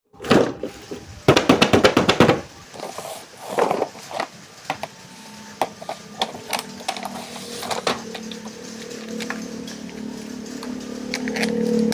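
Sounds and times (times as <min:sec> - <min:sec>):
packaging crackling clicks: 0:05.6 - 0:11.9.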